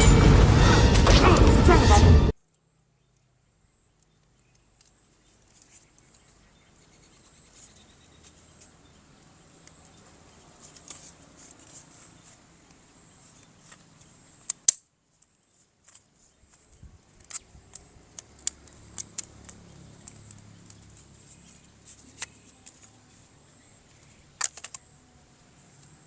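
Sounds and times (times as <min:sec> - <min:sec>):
faint handling noise: 0:07.5 - 0:24.9
small clicks: 0:17.2 - 0:21.1, 0:23.8 - 0:24.9.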